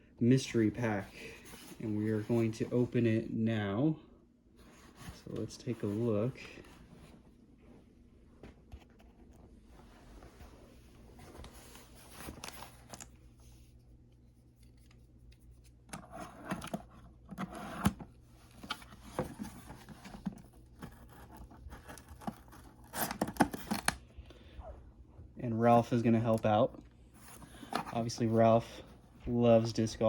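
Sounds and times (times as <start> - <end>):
cardboard and tape tearing: 19.1 - 24.0.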